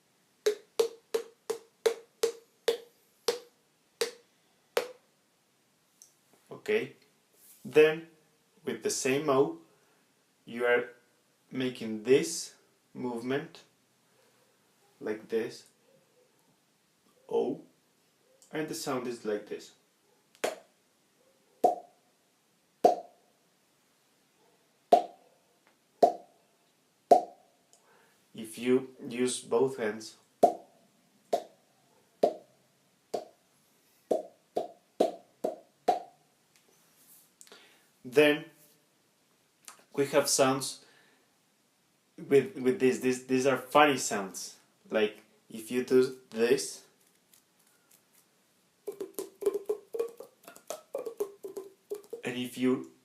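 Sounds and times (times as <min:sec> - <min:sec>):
hollow mouth pops: 0:00.5 - 0:04.2, 0:21.6 - 0:21.9, 0:22.8 - 0:23.1, 0:24.9 - 0:25.2, 0:26.0 - 0:26.3, 0:48.8 - 0:52.3.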